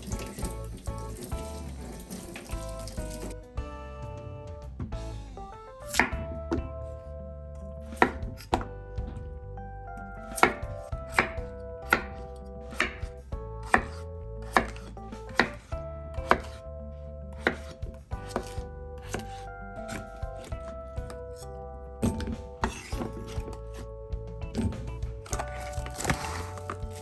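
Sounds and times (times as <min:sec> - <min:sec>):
knife chopping on cutting board: 0:05.9 - 0:06.7, 0:07.8 - 0:09.3, 0:10.2 - 0:16.6, 0:17.4 - 0:21.4, 0:22.0 - 0:23.8, 0:24.5 - 0:27.0.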